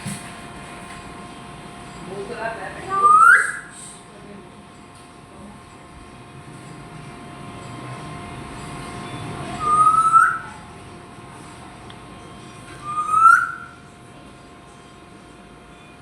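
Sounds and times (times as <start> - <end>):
parrot whistling: 2.9 - 4.0, 9.5 - 10.7, 12.8 - 13.8.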